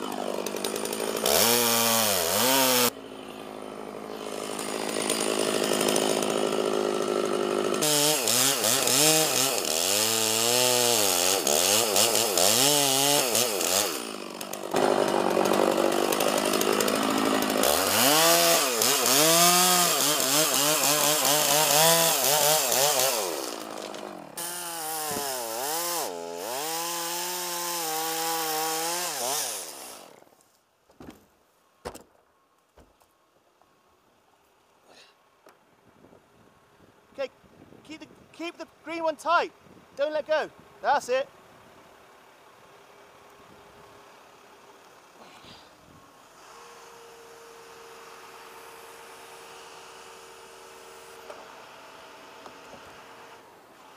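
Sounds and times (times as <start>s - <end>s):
chainsaw cutting wood: 0.0s - 30.4s, 44.6s - 53.9s.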